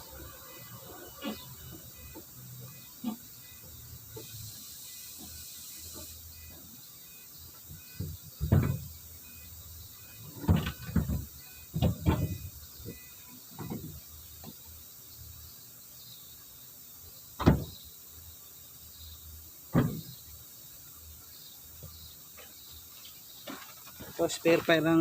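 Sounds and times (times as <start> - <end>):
tools knocking and clunking: 8.0 - 8.9, 19.7 - 20.1.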